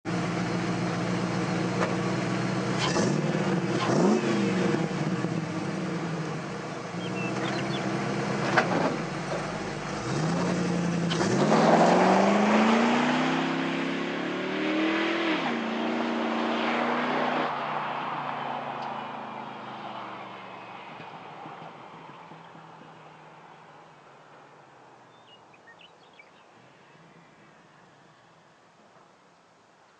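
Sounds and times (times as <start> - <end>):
car engine idling and revving: 0.0 - 25.0.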